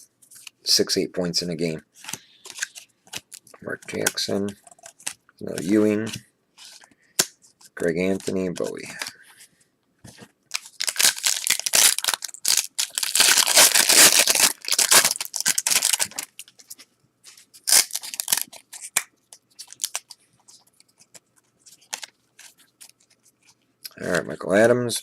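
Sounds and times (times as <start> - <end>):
wrapper tearing and crinkling: 10.5 - 16.7, 17.6 - 19.0, 19.6 - 20.1.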